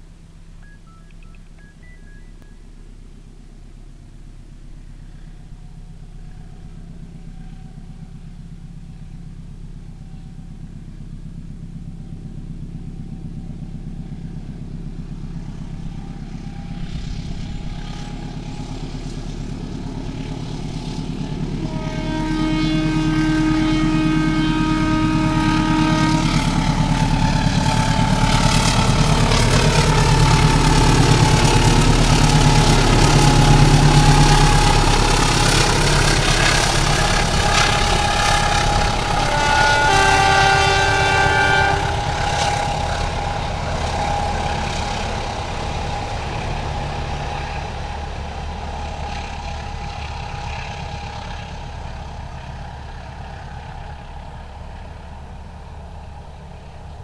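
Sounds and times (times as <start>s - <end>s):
locomotive engine under load: 0.0s - 57.0s
train coaches rumbling past: 0.0s - 57.0s
locomotive horn: 20.0s - 47.8s.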